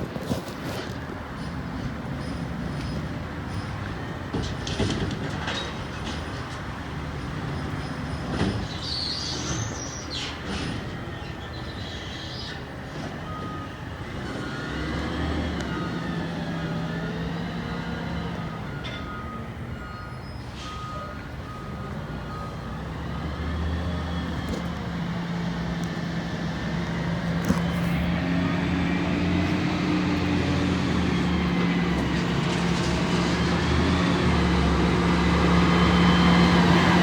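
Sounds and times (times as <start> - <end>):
diesel engine running: 21.4 - 37.0.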